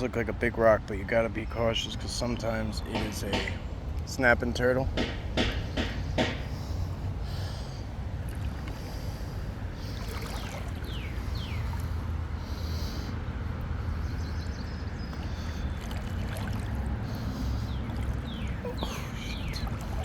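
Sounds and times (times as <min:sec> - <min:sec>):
water sloshing around wading legs: 0:05.6 - 0:20.0.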